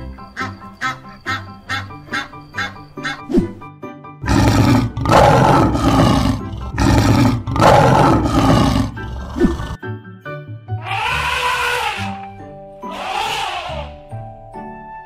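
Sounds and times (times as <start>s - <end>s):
light background music: 0.0s - 15.0s
lion roaring: 4.2s - 9.8s.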